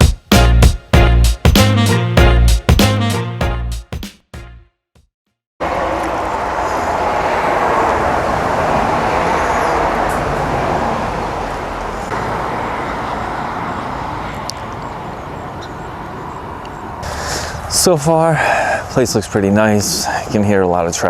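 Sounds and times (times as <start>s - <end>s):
road traffic noise: 5.6s - 21.0s.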